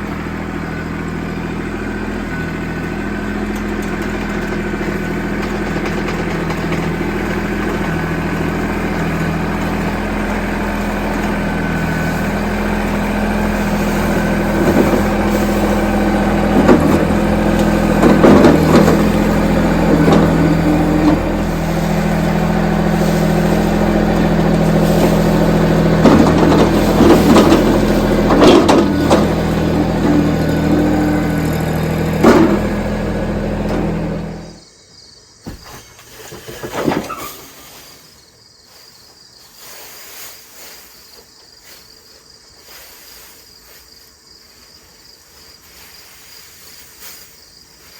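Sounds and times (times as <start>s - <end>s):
tractor engine running: 0.0s - 34.6s.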